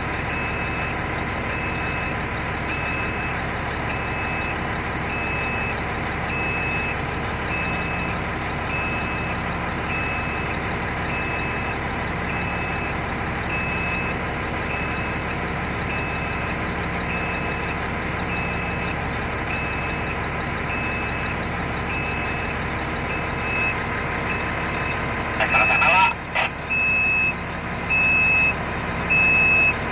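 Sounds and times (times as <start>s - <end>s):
ship engine running: 0.0s - 28.0s
electronic alarm beeping: 0.3s - 29.8s.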